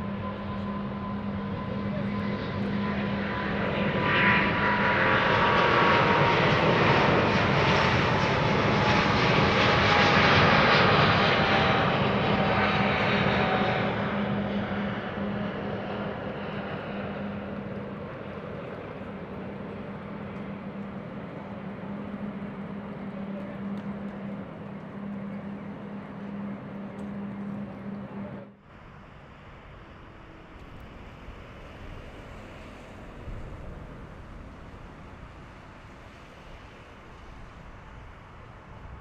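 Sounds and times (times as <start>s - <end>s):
jet engines humming and rushing: 0.0s - 39.0s.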